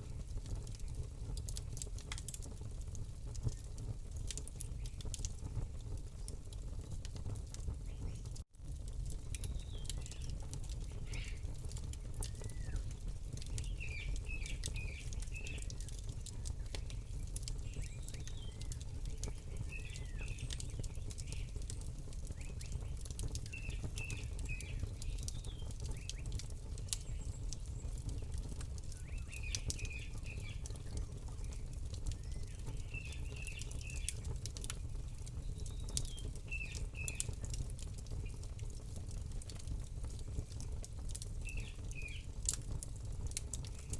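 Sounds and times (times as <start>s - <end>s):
campfire crackling and popping: 0.0s - 43.9s
songbird chirping: 28.9s - 31.1s.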